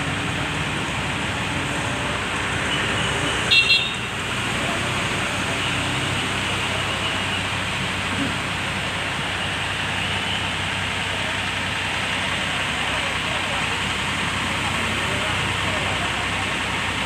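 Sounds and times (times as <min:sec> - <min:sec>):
road traffic: 0:00.0 - 0:17.0
vehicle horn toots: 0:02.8 - 0:04.2.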